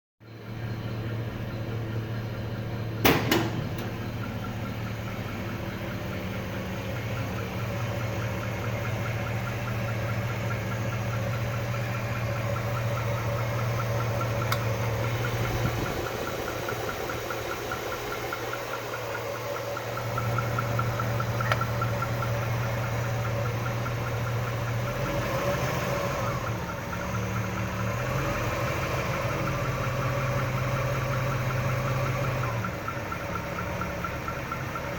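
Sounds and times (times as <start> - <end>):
engine idling: 0.2 - 34.9
fast regular ticking: 4.0 - 24.9
sharp clicks: 14.2 - 14.9, 20.4 - 22.1.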